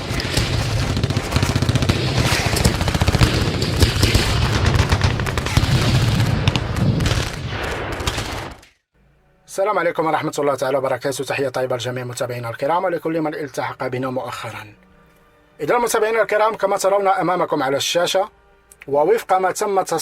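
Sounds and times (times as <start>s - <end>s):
rapid automatic gunfire: 0.0s - 8.6s.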